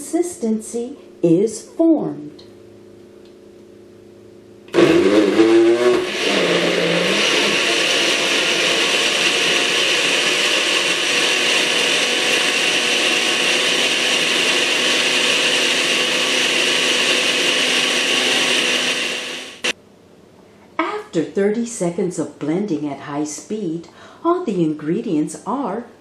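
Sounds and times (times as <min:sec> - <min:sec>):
blender motor whining: 0:04.7 - 0:19.8.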